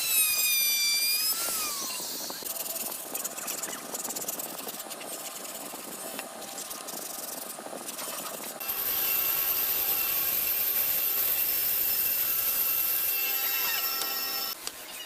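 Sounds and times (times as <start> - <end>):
power tool with high whine: 0.0 - 2.5, 8.6 - 14.6.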